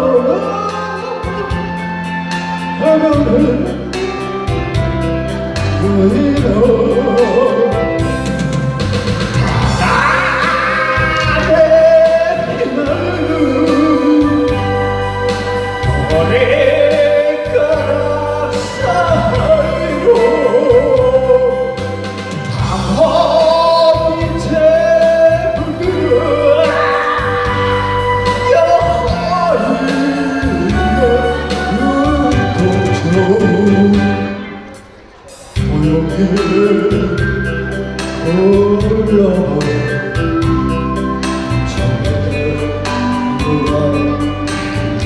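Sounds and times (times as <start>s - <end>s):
man singing: 0.0s - 4.8s, 5.5s - 34.8s, 35.5s - 45.0s
karaoke backing track: 0.0s - 45.0s.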